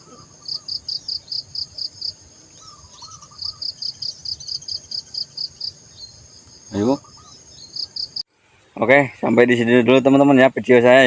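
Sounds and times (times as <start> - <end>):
rhythmic high insect chirp: 0.0 - 8.2
insects buzzing: 0.0 - 8.3.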